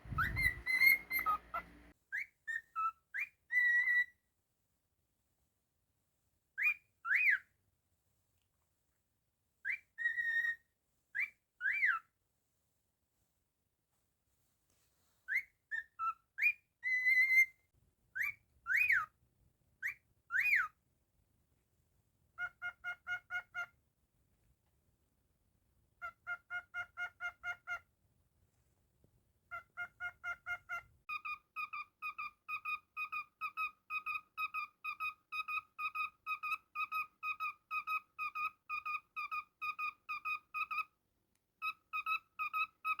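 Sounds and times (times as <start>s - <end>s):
cockatiel whistling: 0.0s - 4.1s, 6.6s - 7.4s, 9.6s - 10.6s, 11.2s - 12.0s, 15.3s - 17.5s, 18.2s - 19.1s, 19.8s - 20.7s, 29.8s - 40.9s, 41.6s - 43.0s.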